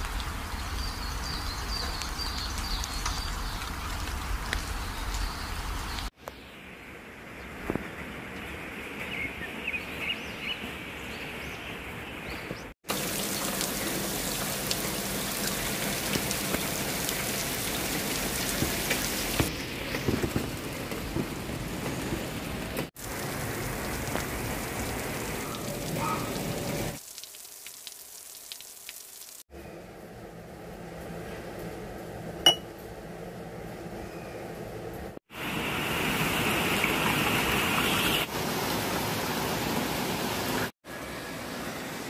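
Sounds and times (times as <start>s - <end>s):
rain falling: 0.0s - 6.1s, 12.8s - 29.4s, 35.3s - 42.0s.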